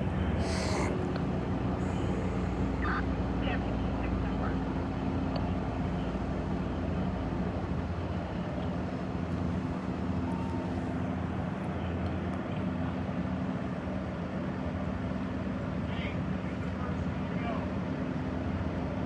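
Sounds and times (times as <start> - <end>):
helicopter droning: 0.0 - 5.3.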